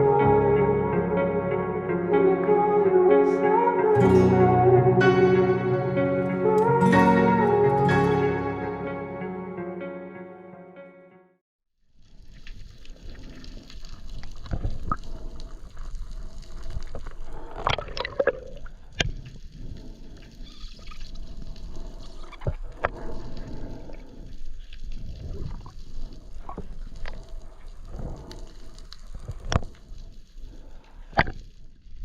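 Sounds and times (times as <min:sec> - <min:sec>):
water sloshing and gurgling: 0:12.3 - 0:31.5.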